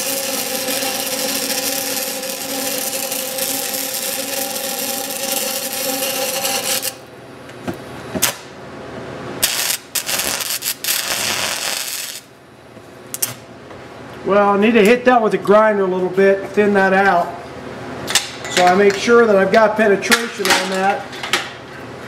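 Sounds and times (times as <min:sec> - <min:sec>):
welding arc crackling: 0:00.0 - 0:07.1, 0:09.4 - 0:12.4.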